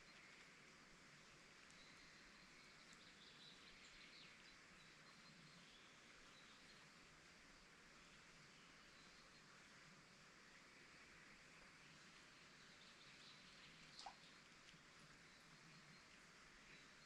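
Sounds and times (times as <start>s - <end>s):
steady hiss: 0.0s - 17.0s
faint bird chirps: 1.6s - 7.0s, 8.0s - 10.2s, 11.8s - 17.0s.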